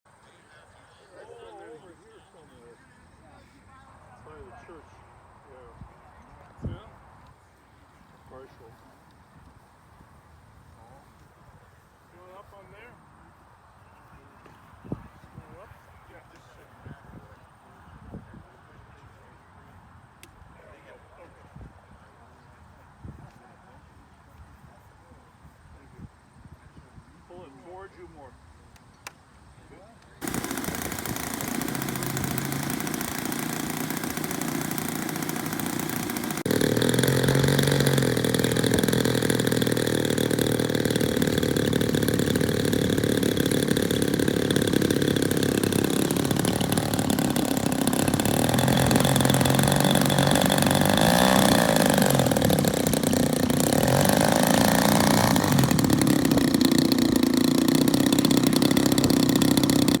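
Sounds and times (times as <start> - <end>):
model airplane engine running: 30.2 - 60.0.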